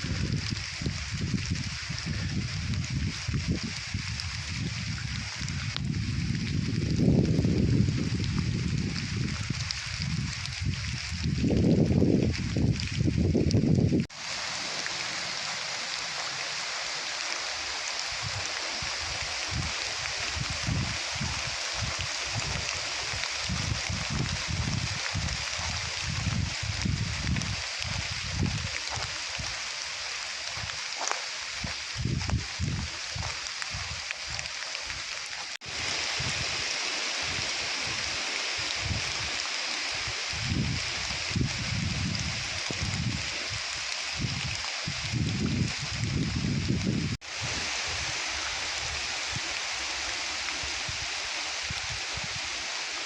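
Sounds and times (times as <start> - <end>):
steady outdoor hiss: 0.0 - 9.9, 14.1 - 45.3, 47.2 - 53.0
wind buffeting microphone: 0.0 - 14.5, 17.5 - 29.7, 30.4 - 52.9
stream flowing: 14.0 - 53.0.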